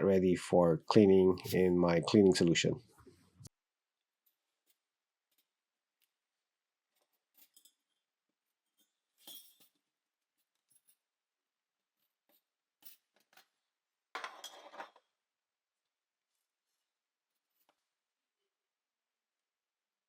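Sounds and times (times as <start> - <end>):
small glass and metal clinks: 8.8 - 9.8.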